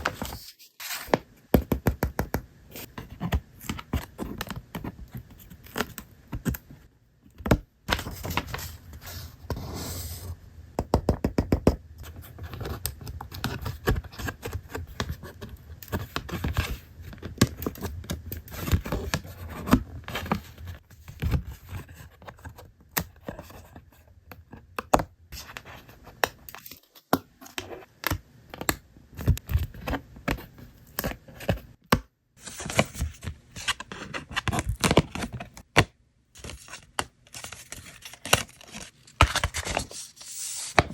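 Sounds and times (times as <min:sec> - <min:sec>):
paper scraping and tearing: 0:36.4 - 0:40.9.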